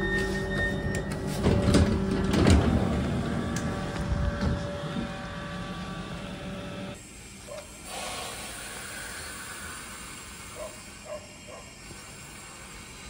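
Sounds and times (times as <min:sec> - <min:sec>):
electric train humming: 0:00.0 - 0:13.0
steady hiss: 0:07.8 - 0:11.0.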